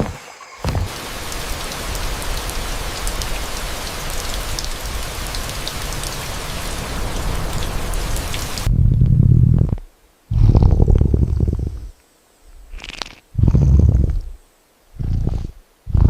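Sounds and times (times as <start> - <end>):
heavy rain falling: 0.0 - 8.7.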